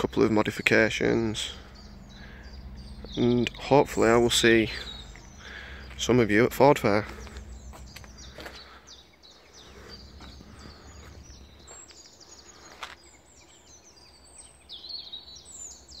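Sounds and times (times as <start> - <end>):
faint low rumble: 0.0 - 12.6
small birds chirping and singing: 0.0 - 16.0.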